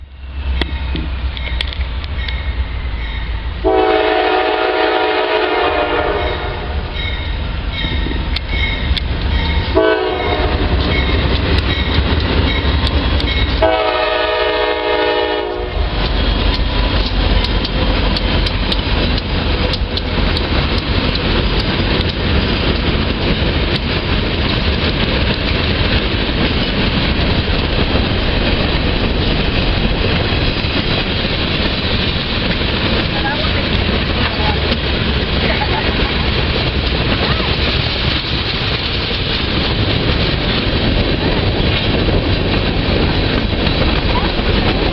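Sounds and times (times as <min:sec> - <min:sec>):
train rumbling past: 0:00.0 - 0:44.9
locomotive horn blasts: 0:03.6 - 0:06.9, 0:09.8 - 0:10.9, 0:13.6 - 0:16.0
wheels clacking over rail joints: 0:06.8 - 0:44.9.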